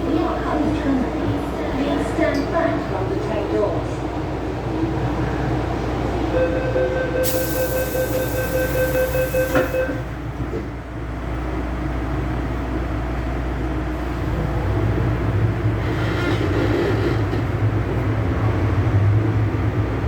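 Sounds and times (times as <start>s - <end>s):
metro train rumble: 0.0s - 20.0s
hiss: 7.2s - 9.8s.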